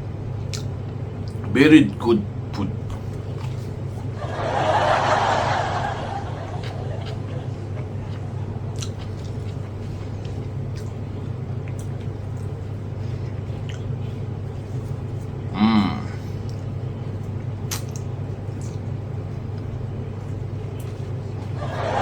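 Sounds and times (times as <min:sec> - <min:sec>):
steady low hum: 0:00.0 - 0:22.0
chewing clicks and smacks: 0:00.4 - 0:01.5, 0:06.5 - 0:14.0, 0:16.4 - 0:21.6
person humming mm: 0:15.5 - 0:16.3.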